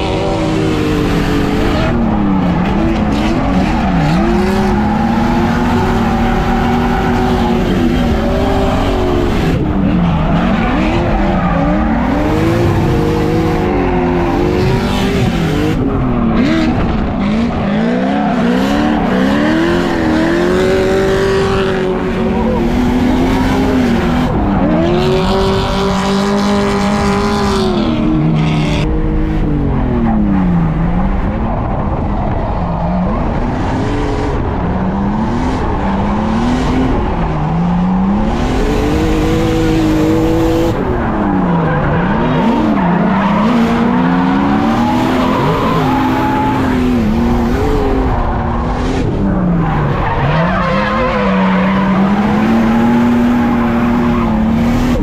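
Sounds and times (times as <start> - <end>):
car engine revving: 0.0 - 55.0
tires skidding and squealing: 0.0 - 55.0.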